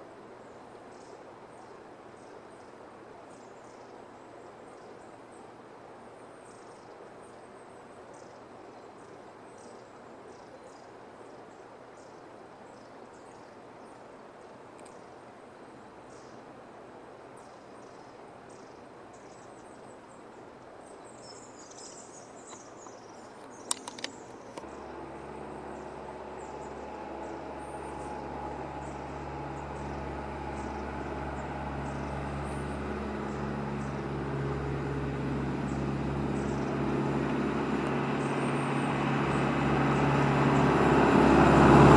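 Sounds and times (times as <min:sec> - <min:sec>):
birds giving high thin calls: 0:21.3 - 0:34.1
sharp clicks: 0:23.5 - 0:24.7
bus engine approaching: 0:24.6 - 0:41.9.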